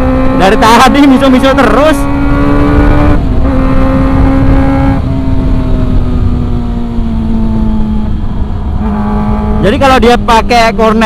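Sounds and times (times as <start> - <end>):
motorcycle engine running high-pitched: 0.0 - 11.0.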